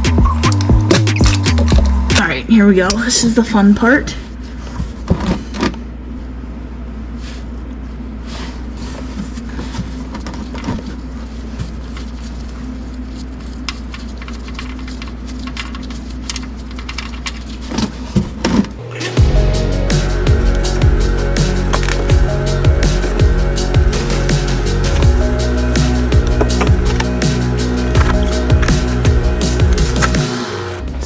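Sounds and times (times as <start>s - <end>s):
music: 0.0s - 2.3s, 18.8s - 31.0s
low mechanical hum: 1.6s - 31.0s.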